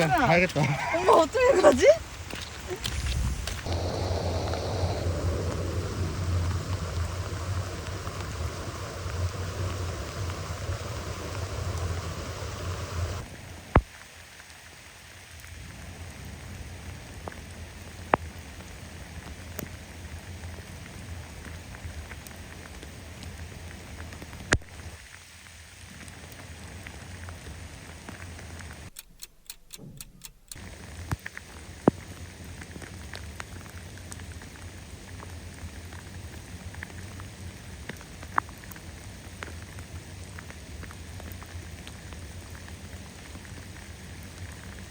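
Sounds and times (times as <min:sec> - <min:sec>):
heavy rain falling: 0:00.0 - 0:28.9.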